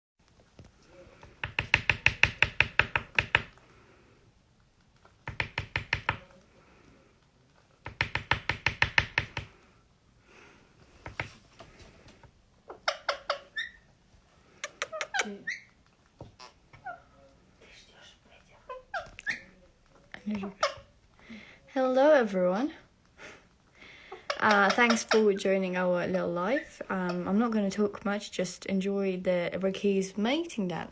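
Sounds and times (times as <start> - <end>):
parrot tapping beak: 1.2 - 3.6, 5.0 - 6.3, 7.8 - 9.5, 14.6 - 15.6
parrot chirping: 12.7 - 13.9, 14.6 - 15.8.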